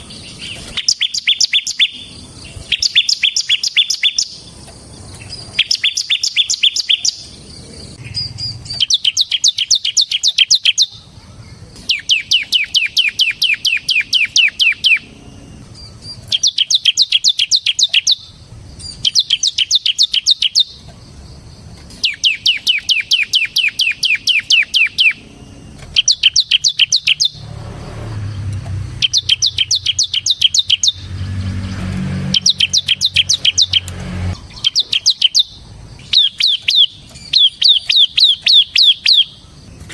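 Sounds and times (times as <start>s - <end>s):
bird singing rapid high notes: 0.0s - 4.6s, 5.2s - 11.1s, 11.7s - 20.9s, 22.0s - 39.6s
low rumble: 26.9s - 34.5s.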